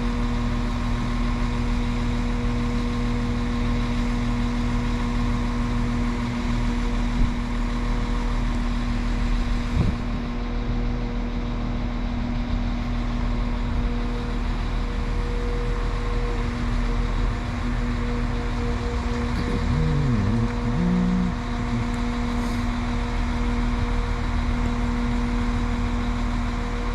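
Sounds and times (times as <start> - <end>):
diesel train engines idling: 0.0 - 26.9.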